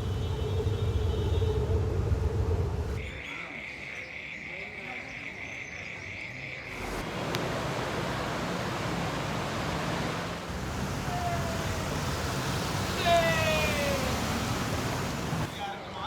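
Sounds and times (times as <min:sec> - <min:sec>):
floodwater rushing and sloshing: 0:06.7 - 0:15.6.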